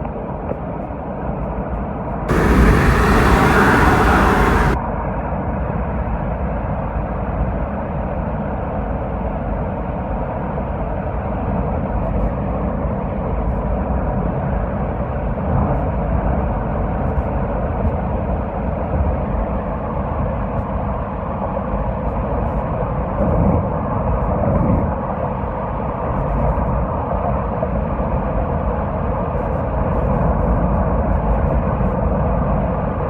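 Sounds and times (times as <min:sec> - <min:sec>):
loud hiss: 0:02.3 - 0:04.8
vehicle road noise rumble: 0:02.3 - 0:04.8.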